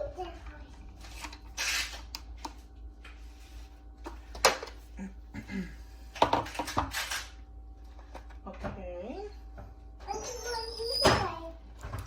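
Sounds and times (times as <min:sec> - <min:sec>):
hard objects knocking and clattering: 0:06.2 - 0:06.9.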